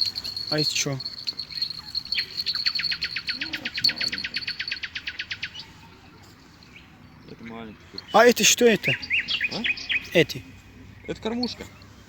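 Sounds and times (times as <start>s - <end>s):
bird trilling: 0.0s - 5.8s, 8.0s - 10.2s.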